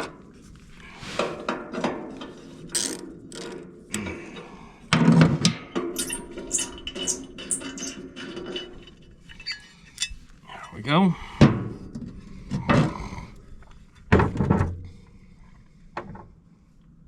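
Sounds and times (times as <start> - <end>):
wrench clicking and clanking on metal: 2.7 - 3.6, 6.0 - 10.2.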